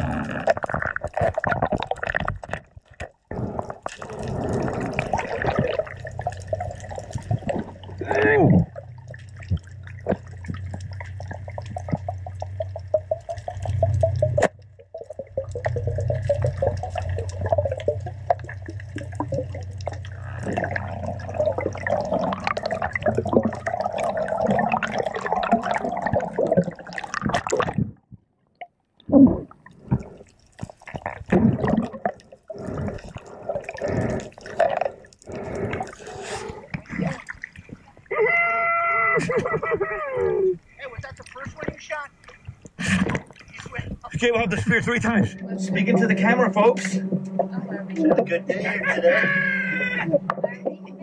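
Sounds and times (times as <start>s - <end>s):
crackling clicks underwater: 0.0s - 8.0s, 8.7s - 38.1s, 41.0s - 44.3s, 50.1s - 50.9s
water sloshing and splashing: 0.0s - 28.1s, 28.7s - 38.1s, 39.3s - 51.0s
underwater low hum: 0.0s - 51.0s.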